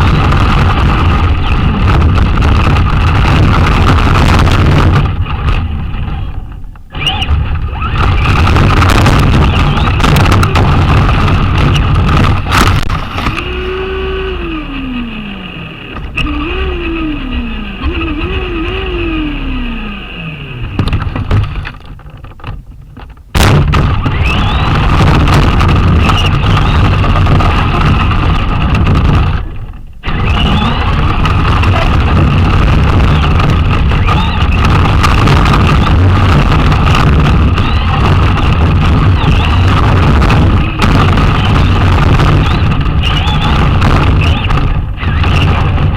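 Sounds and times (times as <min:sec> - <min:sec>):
rolling tyre and chassis noise: 0:00.0 - 0:45.9
electric motor whine: 0:06.9 - 0:21.8, 0:24.0 - 0:45.9.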